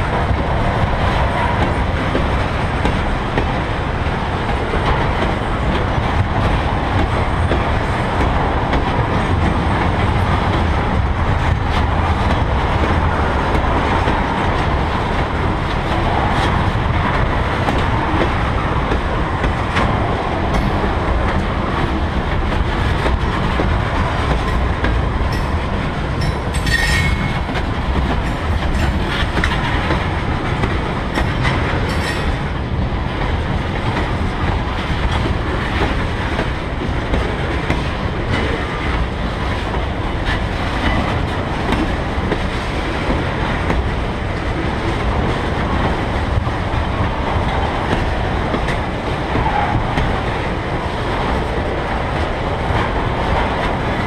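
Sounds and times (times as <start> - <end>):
clickety-clack over rail joints: 0.0 - 54.0
train wheels rumbling: 0.0 - 54.0
high wheel squeal: 26.6 - 27.4.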